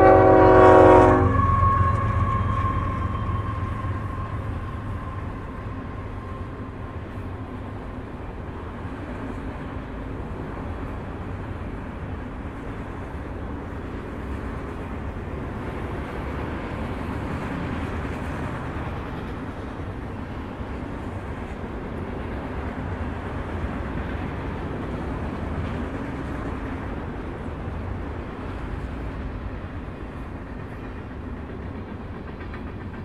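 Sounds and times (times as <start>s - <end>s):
locomotive horn: 0.0s - 6.5s
freight train wheels rumbling: 0.0s - 33.0s.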